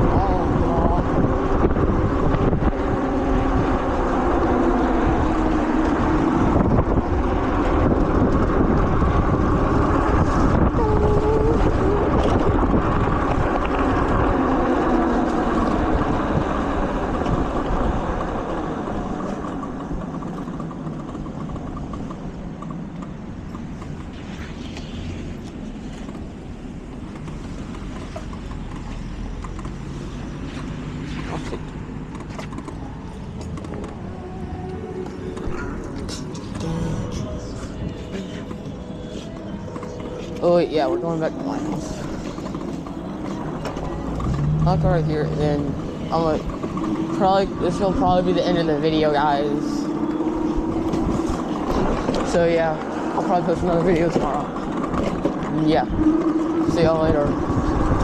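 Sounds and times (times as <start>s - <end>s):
car engine running loud: 0.0s - 58.0s
quiet traffic: 0.0s - 58.0s
wind noise: 0.0s - 58.0s.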